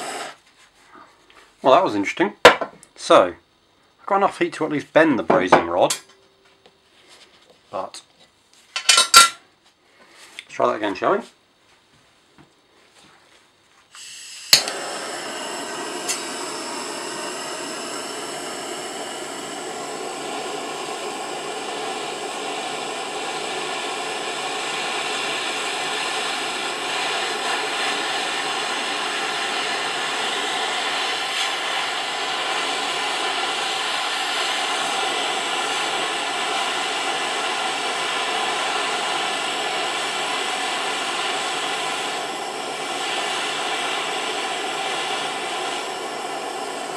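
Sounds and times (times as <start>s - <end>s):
blowtorch flame roaring: 0.0s - 0.4s, 14.0s - 46.9s
blowtorch ignition click: 13.9s - 46.9s.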